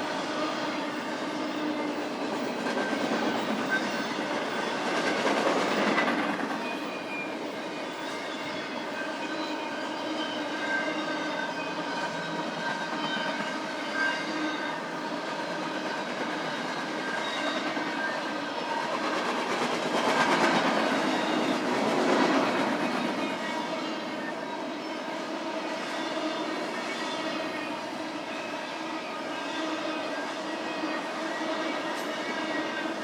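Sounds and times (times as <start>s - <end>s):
train wheels clattering on rails: 0.0s - 9.0s, 10.6s - 24.3s, 31.1s - 33.0s.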